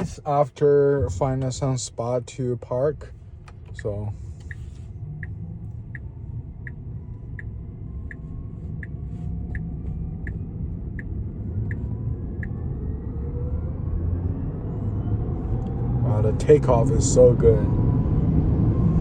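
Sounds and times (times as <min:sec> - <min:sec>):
low road rumble: 0:00.0 - 0:19.0
turn signal ticking: 0:02.9 - 0:13.1.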